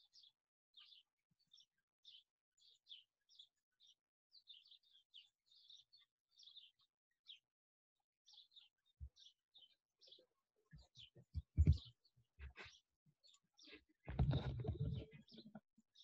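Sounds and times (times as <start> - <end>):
faint birds chirping: 0.0 - 16.0
soft low thump: 11.4 - 11.9.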